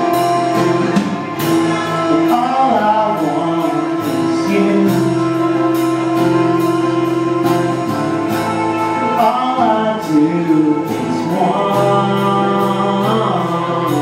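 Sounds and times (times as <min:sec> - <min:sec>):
person singing: 0:00.0 - 0:14.0
rock song: 0:00.0 - 0:14.0
steady drum beat: 0:00.0 - 0:14.0.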